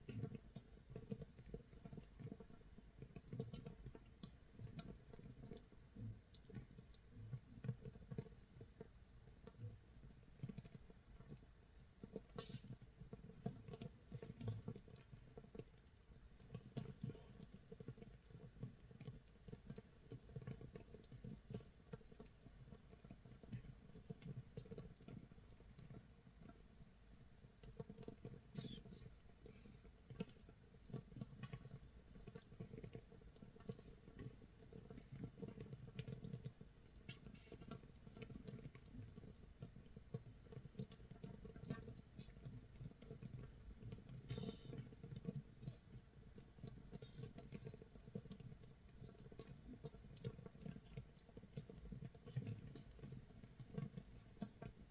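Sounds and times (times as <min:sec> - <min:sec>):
bubbles popping crackle: 0:27.4 - 0:54.9.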